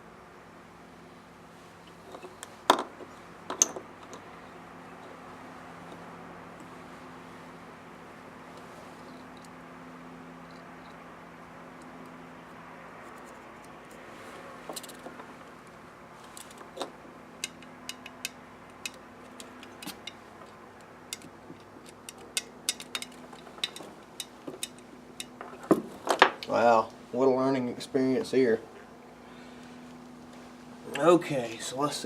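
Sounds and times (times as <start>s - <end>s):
steady low hum: 0.0s - 32.0s
metal parts and tools clinking: 16.3s - 26.4s.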